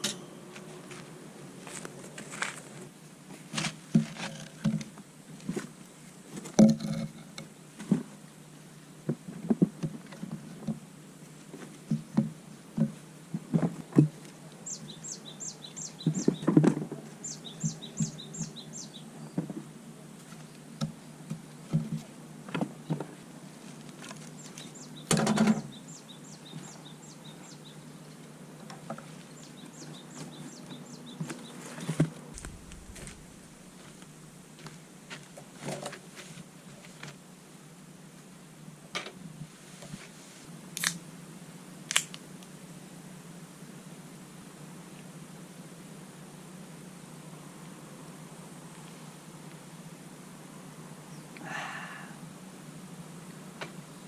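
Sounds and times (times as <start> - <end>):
objects knocking and clunking: 6.5 - 7.3
bird chirping: 14.6 - 16.6, 17.2 - 19.4, 24.4 - 28.2, 29.2 - 33.4.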